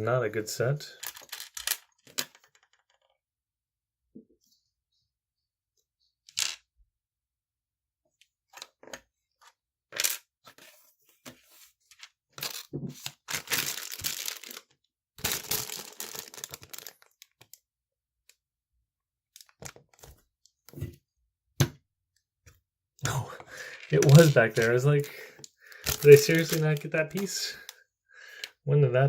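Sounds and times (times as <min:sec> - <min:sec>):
loose plastic pieces rattling: 0:01.0 - 0:02.9, 0:12.4 - 0:12.7, 0:13.3 - 0:17.5, 0:23.6 - 0:27.8
plastic pieces clicking together: 0:01.0 - 0:03.1, 0:13.3 - 0:17.6, 0:23.6 - 0:27.8.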